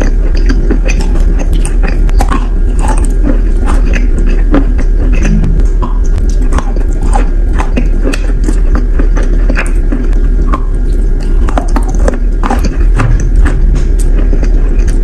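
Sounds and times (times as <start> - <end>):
chewing wet clay: 0.0 - 15.0
low hum: 0.0 - 15.0.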